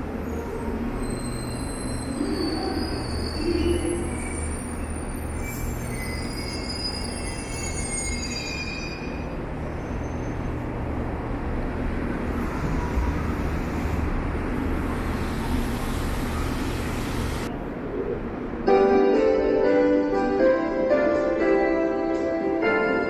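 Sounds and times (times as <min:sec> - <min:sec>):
train wheels rumbling on rail: 0:00.0 - 0:18.6
high wheel squeal: 0:00.2 - 0:10.6.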